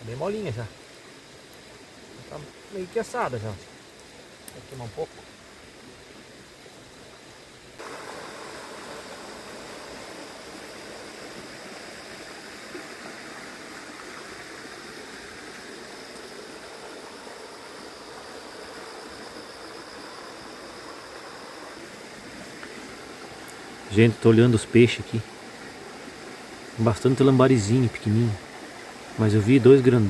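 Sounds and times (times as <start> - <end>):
river water rushing: 7.8 - 30.0.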